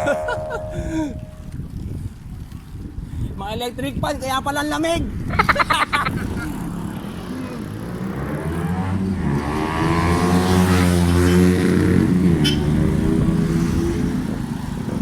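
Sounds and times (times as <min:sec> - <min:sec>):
road and wind noise: 0:00.0 - 0:15.0
vehicle engine passing by: 0:06.4 - 0:15.0.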